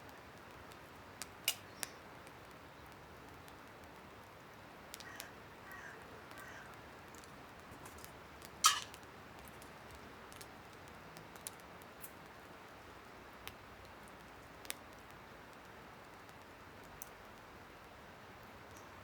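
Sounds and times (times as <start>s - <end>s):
small metal parts clicking: 8.6s - 8.9s.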